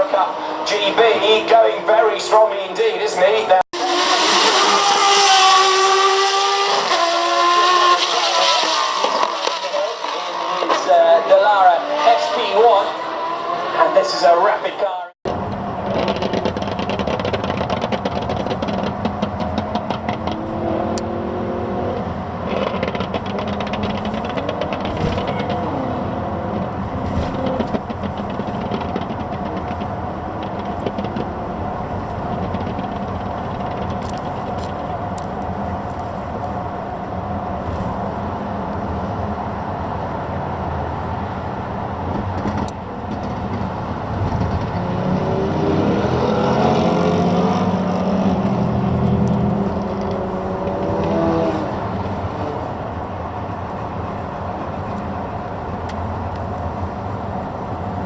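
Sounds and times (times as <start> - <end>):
racing car engines: 0.0 - 58.0
racing car passing with upshifts: 0.0 - 58.0.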